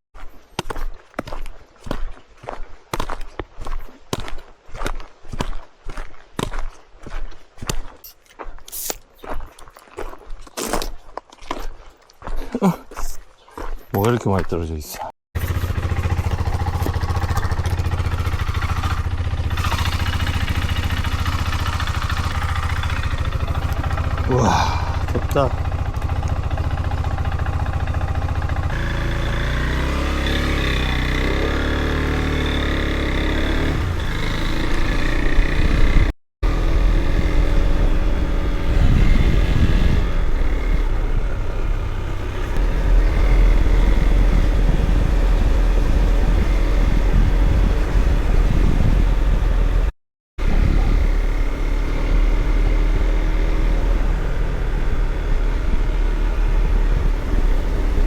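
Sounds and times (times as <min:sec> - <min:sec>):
motorcycle engine running: 0:15.4 - 0:58.0
wind rumble on microphone: 0:36.7 - 0:41.6, 0:42.6 - 0:51.3.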